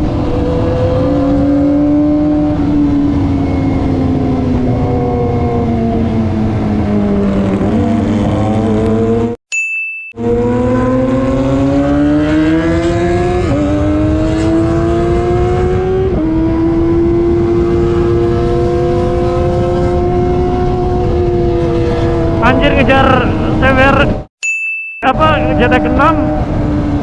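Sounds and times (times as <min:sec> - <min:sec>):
motorcycle engine accelerating: 0:00.0 - 0:09.4, 0:10.2 - 0:24.3, 0:25.2 - 0:27.0
wind noise: 0:25.2 - 0:27.0.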